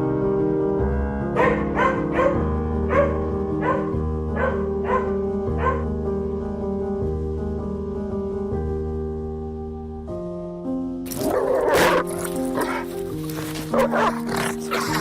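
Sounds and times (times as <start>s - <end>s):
piano music: 0.0s - 15.0s
dog barking: 1.3s - 5.9s, 11.2s - 15.0s.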